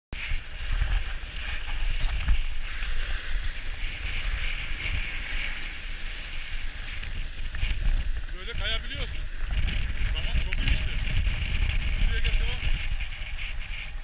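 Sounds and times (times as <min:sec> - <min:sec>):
wind buffeting microphone: 0:00.1 - 0:14.0
hiss of sliding on snow: 0:00.2 - 0:11.0.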